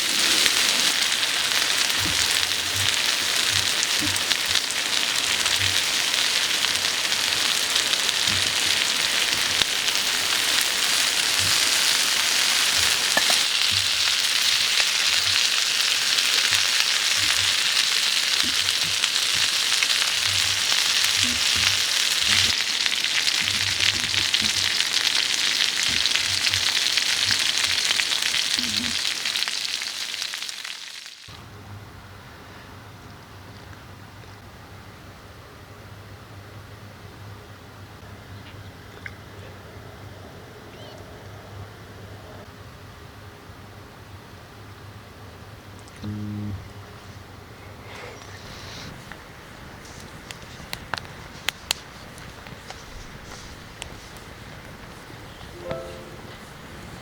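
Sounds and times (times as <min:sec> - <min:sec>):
food sizzling on a grill: 0:00.0 - 0:31.3
faint fire pops: 0:49.0 - 0:55.6.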